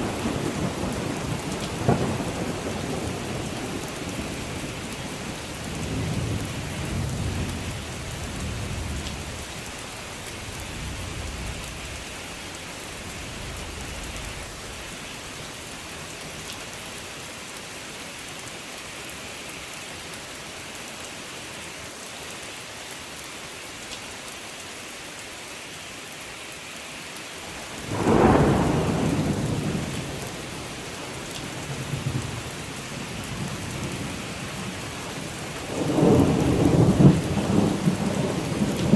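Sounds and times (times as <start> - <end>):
rain hissing: 0.0 - 38.9
loud thunderclap: 27.9 - 29.9, 35.7 - 38.9
thunder rumbling: 27.9 - 30.2, 35.7 - 38.9.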